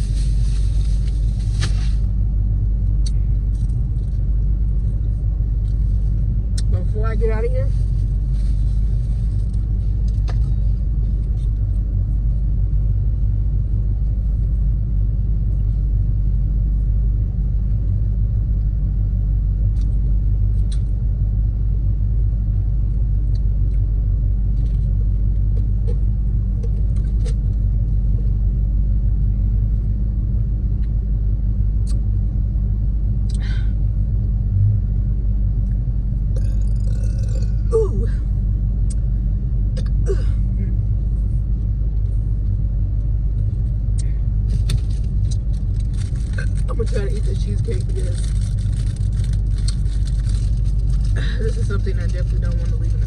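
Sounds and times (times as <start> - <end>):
car engine idling: 0.0 - 53.0
faint clicks and rustles: 43.4 - 53.0.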